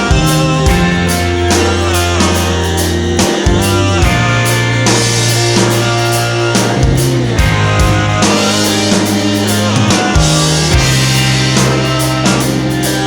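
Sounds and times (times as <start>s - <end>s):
bass guitar: 0.0s - 13.0s
drum kit beat: 0.0s - 13.0s
electric guitar: 0.0s - 13.0s
rock music: 0.0s - 13.0s.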